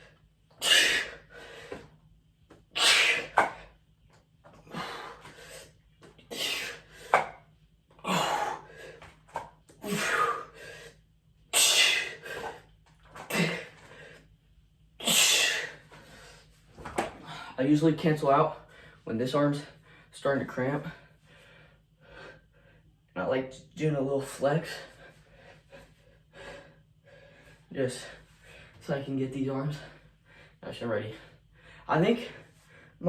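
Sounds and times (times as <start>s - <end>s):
man breathing forcefully: 0.0s - 2.0s, 2.8s - 3.8s, 4.6s - 7.4s, 8.0s - 9.2s, 9.8s - 14.3s, 24.7s - 28.8s.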